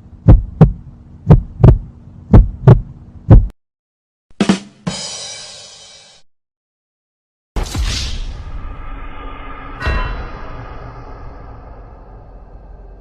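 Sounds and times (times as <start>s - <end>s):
steady hum: 0.0s - 3.5s, 8.6s - 13.0s
heartbeat thumps: 0.2s - 3.6s
sharp hit and ringing crash: 7.6s - 13.0s.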